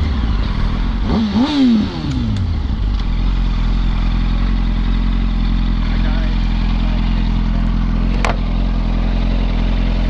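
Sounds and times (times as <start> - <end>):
motorcycle engine idling: 0.0 - 10.0
motorcycle engine revving: 0.0 - 10.0.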